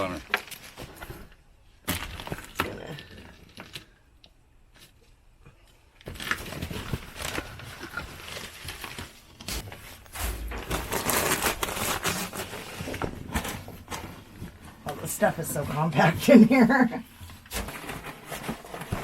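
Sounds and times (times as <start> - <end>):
material rustling and crunching: 6.0 - 19.0.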